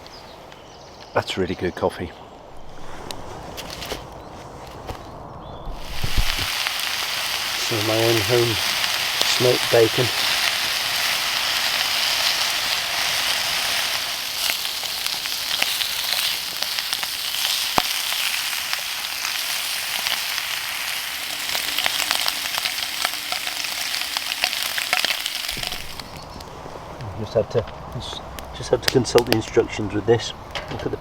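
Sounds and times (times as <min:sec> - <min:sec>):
bacon sizzling in a pan: 0:05.7 - 0:26.2.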